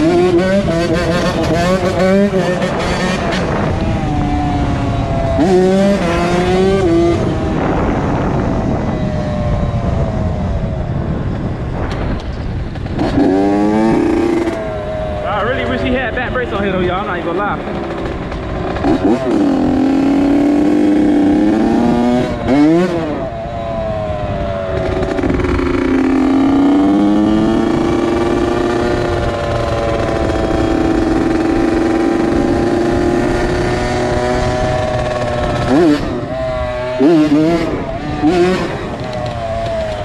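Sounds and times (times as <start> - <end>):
two-stroke motorcycle engine running: 9.9 - 40.0.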